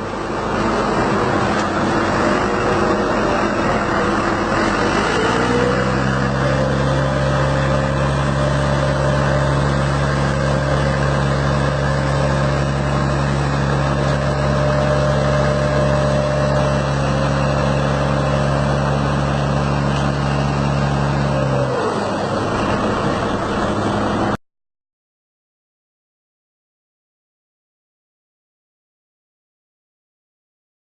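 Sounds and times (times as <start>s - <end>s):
heavy truck engine running: 0.0s - 24.4s.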